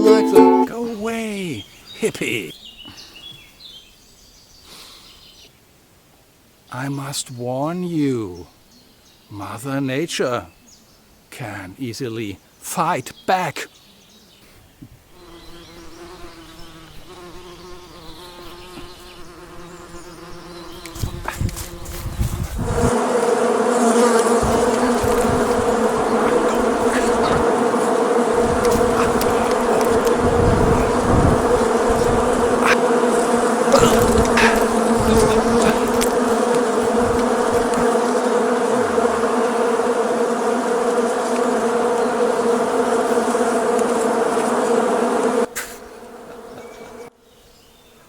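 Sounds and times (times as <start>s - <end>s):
insect swarm buzzing: 15.1s - 48.0s.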